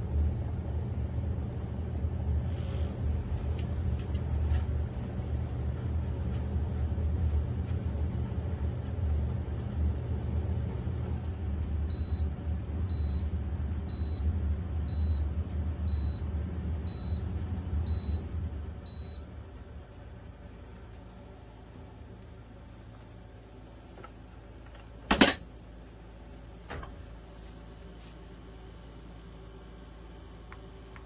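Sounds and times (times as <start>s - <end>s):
dishwasher running: 2.9s - 19.7s, 23.9s - 25.6s.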